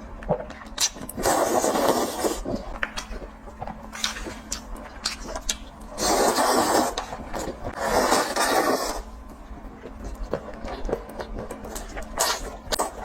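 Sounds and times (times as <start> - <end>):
grainy chewing: 0.1 - 13.0.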